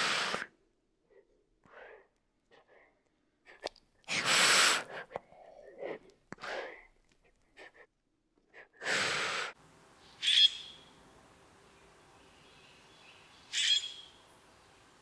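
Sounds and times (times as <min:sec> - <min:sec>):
faint breathy sounds: 0:00.0 - 0:09.6
lizard hissing: 0:04.1 - 0:05.0, 0:08.8 - 0:09.6.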